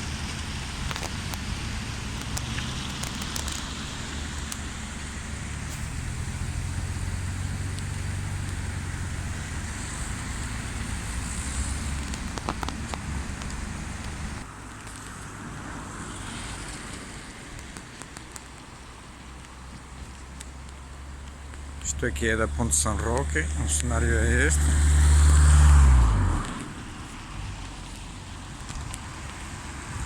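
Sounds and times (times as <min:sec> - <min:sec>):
wind buffeting microphone: 0:00.0 - 0:14.4
river rushing: 0:00.0 - 0:14.5.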